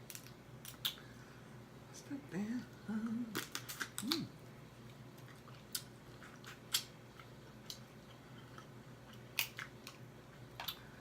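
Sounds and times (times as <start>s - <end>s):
quiet chewing: 3.0s - 11.0s
crab shell clicks and crunches: 9.2s - 10.0s.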